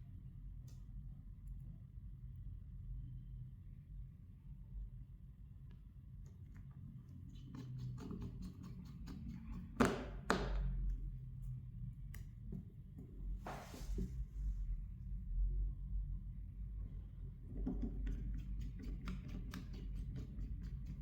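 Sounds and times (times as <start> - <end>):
low hum: 13.3 - 17.5.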